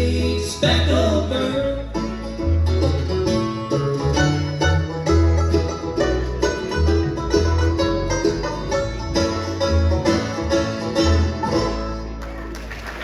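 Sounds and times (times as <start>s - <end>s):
plucked banjo notes: 0.0s - 12.5s
bluegrass band playing: 0.0s - 13.0s.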